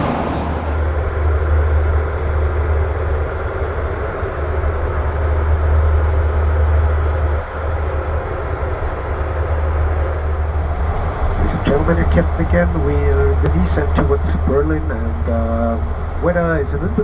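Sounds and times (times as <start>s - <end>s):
airflow hiss: 0.0s - 1.1s
airplane cabin rumble: 0.0s - 17.0s.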